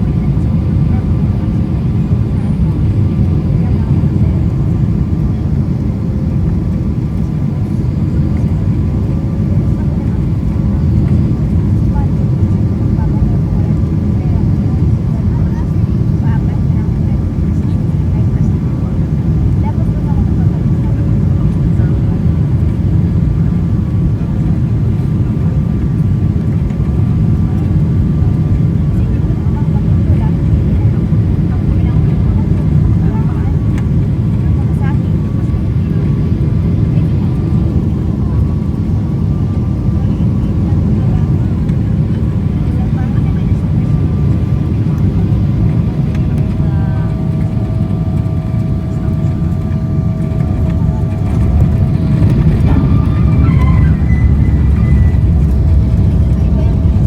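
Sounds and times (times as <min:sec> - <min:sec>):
airliner engines rumbling: 0:00.0 - 0:57.0
faint high tone: 0:48.4 - 0:57.0.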